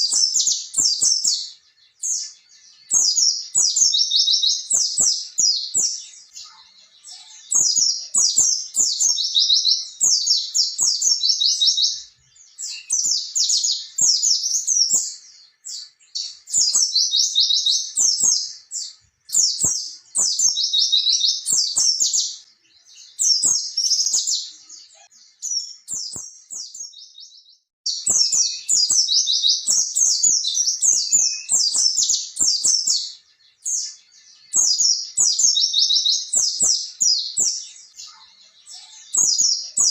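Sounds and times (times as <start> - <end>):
bird rolling chirping song: 0.0 - 39.9.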